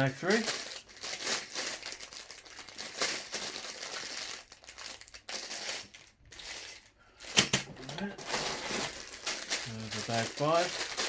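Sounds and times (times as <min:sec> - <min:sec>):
plastic bags crinkling: 0:00.0 - 0:11.0
loose plastic pieces shifting: 0:02.5 - 0:11.0.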